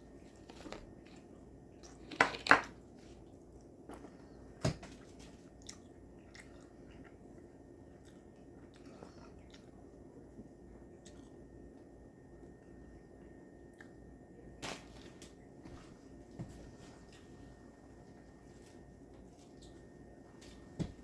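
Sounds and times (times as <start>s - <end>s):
crackly rustles of food: 0.0s - 12.0s, 16.6s - 20.8s.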